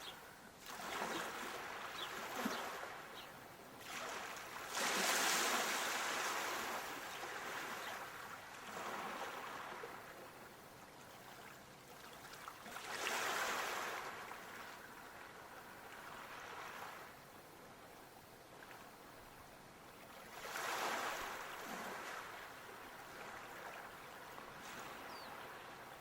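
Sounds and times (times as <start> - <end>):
water washing in waves: 3.8 - 10.1, 12.3 - 14.8, 20.3 - 23.7.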